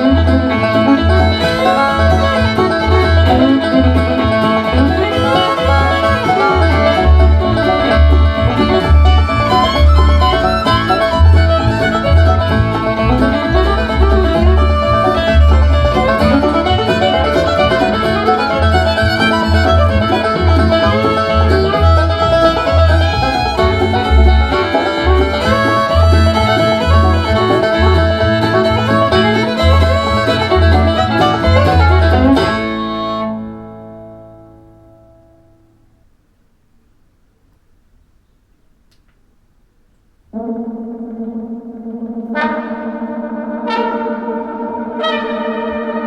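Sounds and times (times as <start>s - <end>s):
country music through speakers: 0.0s - 34.6s.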